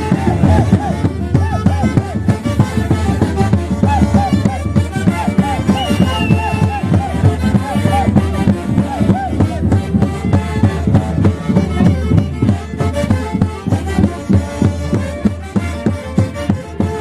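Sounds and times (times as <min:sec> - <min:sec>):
orchestra playing festival music: 0:00.0 - 0:17.0.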